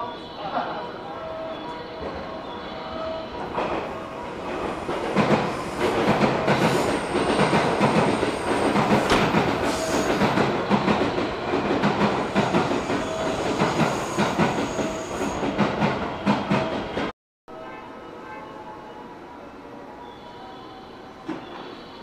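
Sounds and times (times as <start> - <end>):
train wheels clattering over rails: 3.5 - 17.1.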